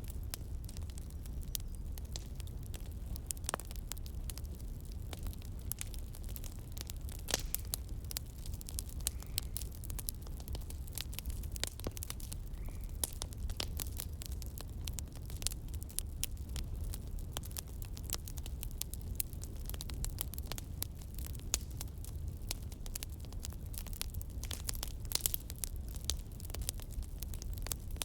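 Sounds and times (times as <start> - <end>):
campfire crackling: 0.0 - 28.0
fire popping: 0.0 - 28.0.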